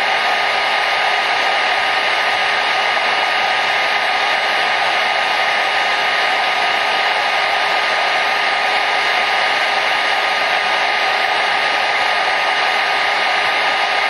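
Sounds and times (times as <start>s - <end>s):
hair dryer running: 0.0s - 14.0s.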